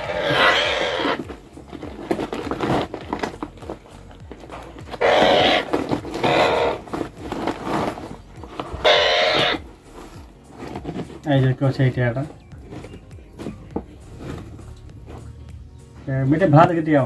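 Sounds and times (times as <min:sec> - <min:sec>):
parakeet squawking harshly: 0:00.0 - 0:01.2, 0:05.0 - 0:06.9, 0:08.8 - 0:09.6.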